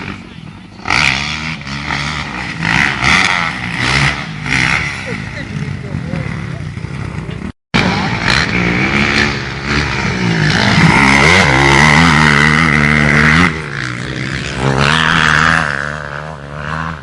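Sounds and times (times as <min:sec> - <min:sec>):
motocross bike engine: 0:00.0 - 0:17.0.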